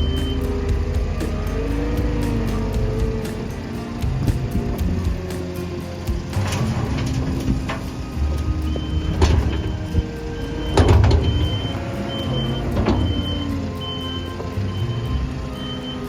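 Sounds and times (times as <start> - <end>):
heavy machine engine running: 0.0 - 16.0
short high beeps: 8.4 - 16.0.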